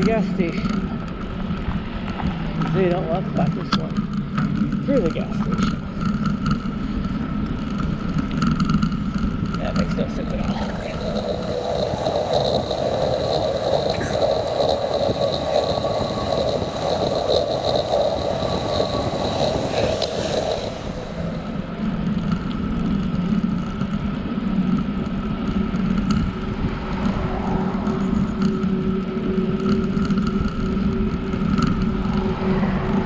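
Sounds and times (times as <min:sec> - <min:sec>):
bicycle rolling on pavement: 0:10.2 - 0:21.8.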